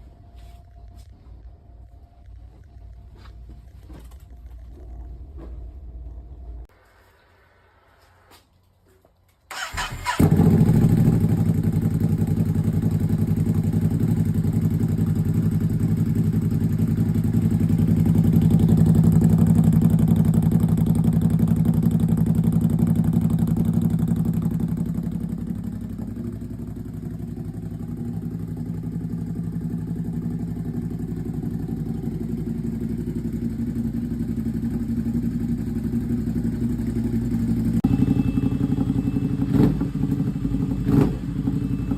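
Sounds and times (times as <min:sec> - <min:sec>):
motorcycle engine starting and idling: 0:09.5 - 0:41.9.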